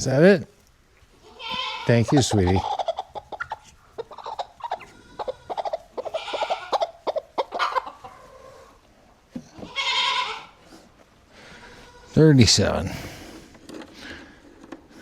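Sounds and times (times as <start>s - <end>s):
hens clucking: 1.0s - 12.9s
goat bleat: 1.2s - 3.0s, 4.6s - 6.9s, 9.6s - 10.6s.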